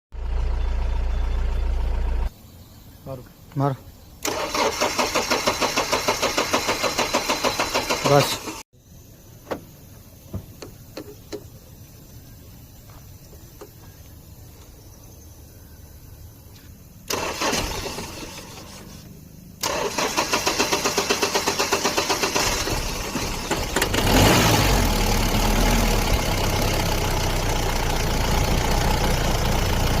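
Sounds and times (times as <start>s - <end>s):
diesel engine cranking and idling: 0.2s - 2.3s, 4.2s - 8.6s, 17.0s - 30.0s.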